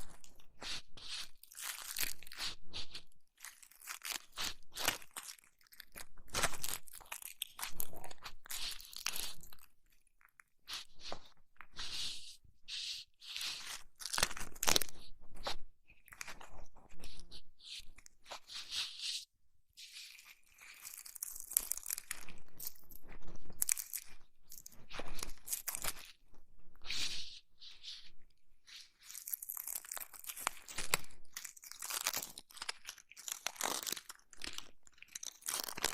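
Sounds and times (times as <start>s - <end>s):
crinkly rubbing on microphone: 10.6s - 31.2s.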